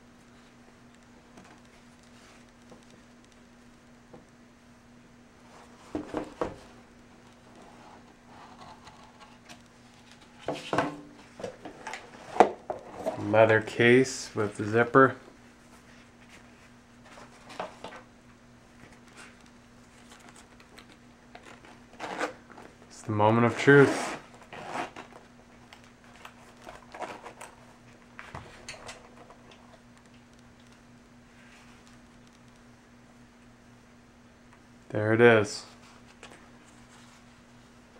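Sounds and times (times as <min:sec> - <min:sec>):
low room hum: 0:00.0 - 0:37.9
packaging rustling: 0:24.3 - 0:27.7.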